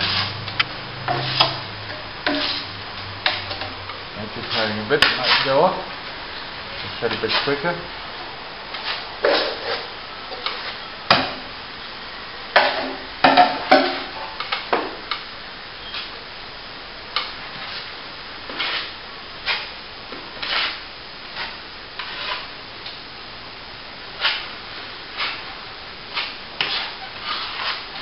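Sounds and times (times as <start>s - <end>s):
scraping and stirring plaster mix: 0.0s - 5.9s, 6.7s - 7.8s, 8.7s - 11.4s, 17.2s - 22.6s, 24.1s - 28.0s.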